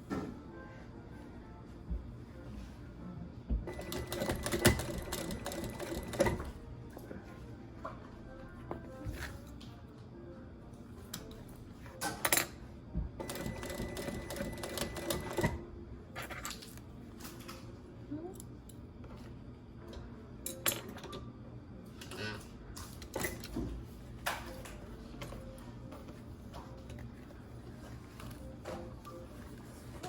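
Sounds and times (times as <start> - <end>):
sewing machine stitching leather: 3.7 - 6.5, 13.2 - 15.6.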